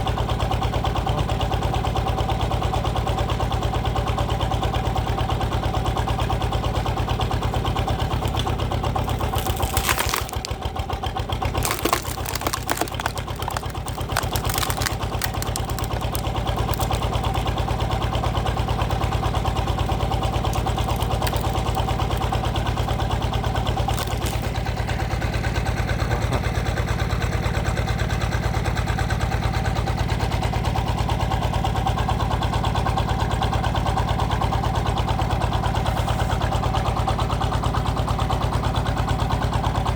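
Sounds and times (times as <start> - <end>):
log cracking and snapping: 8.1 - 10.7, 11.5 - 24.7.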